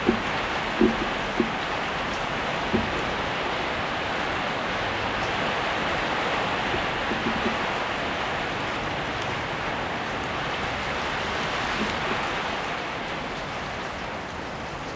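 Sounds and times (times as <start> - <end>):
short dull knocks: 0.0 - 3.6, 6.4 - 7.9, 11.5 - 12.5
heavy rain: 0.0 - 14.9.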